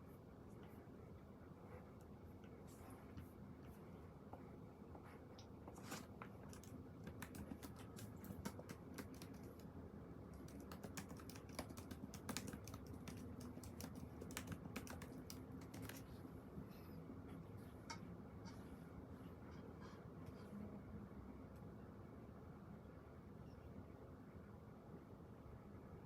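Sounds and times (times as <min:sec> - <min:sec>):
typing on computer keyboard: 0:06.4 - 0:09.7, 0:10.3 - 0:16.0.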